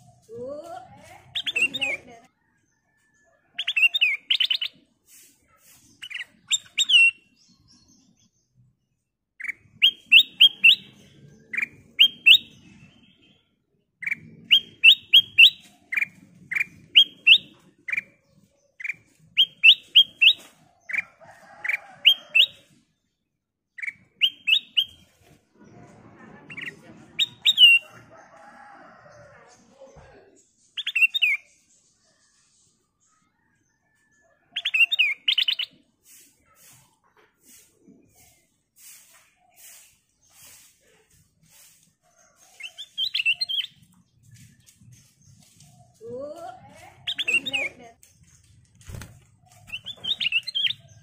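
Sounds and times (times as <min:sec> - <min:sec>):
bird singing whistled notes: 0:09.4 - 0:11.0, 0:11.6 - 0:13.1, 0:19.4 - 0:20.4, 0:23.8 - 0:25.0.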